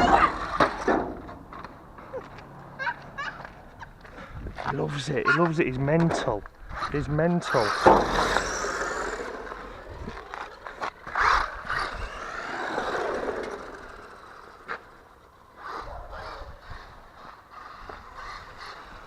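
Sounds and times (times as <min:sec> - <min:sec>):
electric motor whining: 0:07.4 - 0:19.0.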